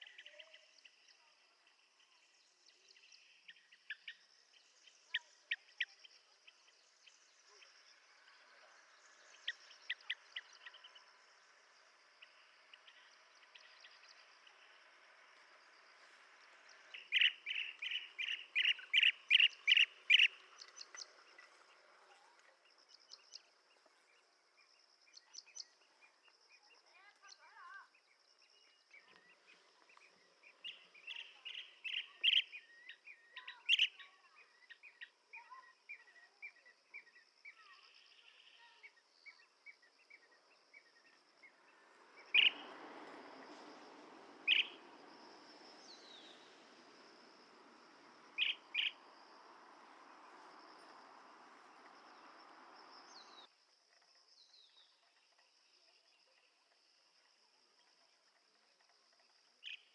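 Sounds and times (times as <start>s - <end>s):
bird calling: 16.6s - 21.8s, 29.0s - 35.6s, 40.8s - 53.5s.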